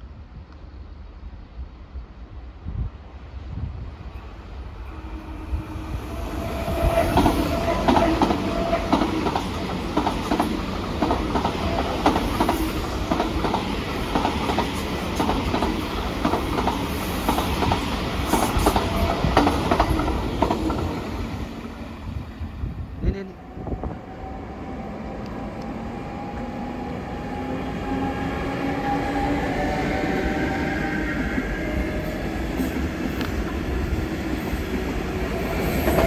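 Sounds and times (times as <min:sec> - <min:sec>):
held whine: 0:04.2 - 0:12.9
train wheels clicking over rail joints: 0:06.8 - 0:21.0.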